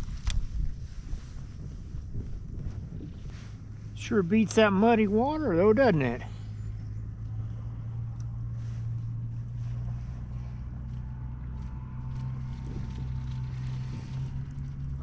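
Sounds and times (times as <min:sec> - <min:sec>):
wind rumble on microphone: 0:00.0 - 0:15.0
faint light ticks: 0:07.2 - 0:08.5.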